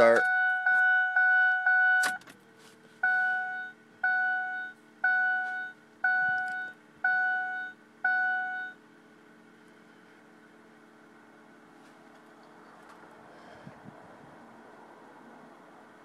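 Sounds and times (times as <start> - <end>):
beeps: 0.0 - 2.2, 3.0 - 8.8
dashboard warning chime: 0.0 - 2.2, 3.0 - 8.8
faint steady hum: 0.0 - 16.0.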